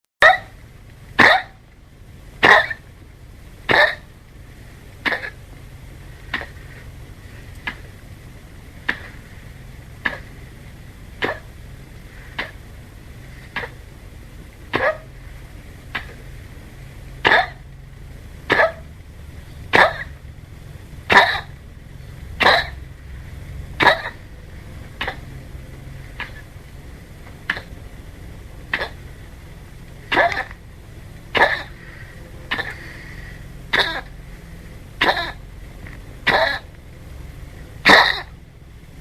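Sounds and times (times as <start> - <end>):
dog coughing: 1.2 - 1.6, 2.4 - 2.9, 3.6 - 4.1, 5.0 - 5.5, 6.3 - 6.6, 7.6 - 7.9, 8.8 - 9.2, 10.0 - 10.4, 11.1 - 11.6, 12.3 - 12.7, 13.5 - 13.8, 14.6 - 15.1, 15.9 - 16.2, 17.2 - 17.7, 18.4 - 18.9, 19.7 - 20.2, 21.1 - 21.6, 22.4 - 22.9, 23.8 - 25.4, 26.1 - 26.5, 27.4 - 27.8, 28.6 - 29.1, 30.0 - 30.6, 31.3 - 34.2, 35.0 - 35.5, 36.2 - 36.8, 37.8 - 38.4.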